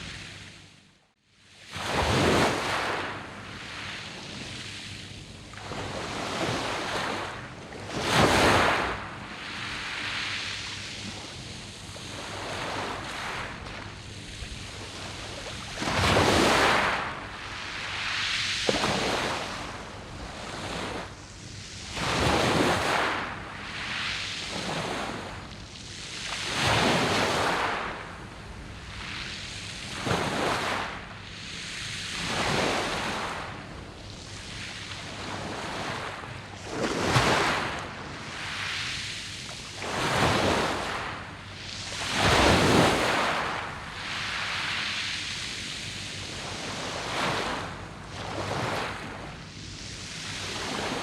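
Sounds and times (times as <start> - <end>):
waves breaking on pebble beach: 1.7 - 4.5, 5.6 - 10.4, 12.0 - 21.1, 21.8 - 23.9, 26.4 - 28.0, 29.9 - 31.0, 32.2 - 33.4, 34.9 - 39.0, 39.7 - 45.0, 46.4 - 49.2.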